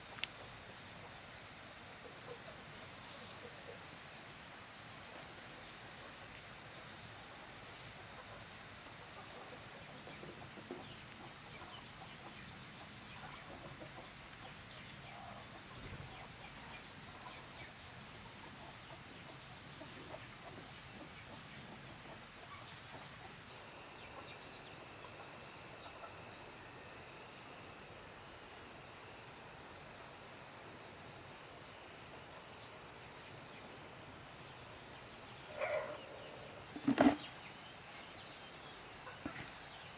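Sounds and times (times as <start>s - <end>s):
chickens clucking: 8.2s - 23.4s, 35.4s - 37.3s, 38.0s - 39.8s.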